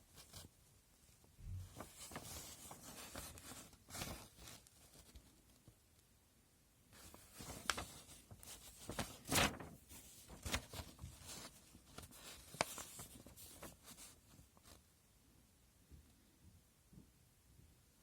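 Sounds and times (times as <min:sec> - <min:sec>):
plastic packaging rustling: 0:01.6 - 0:05.4, 0:07.0 - 0:14.4.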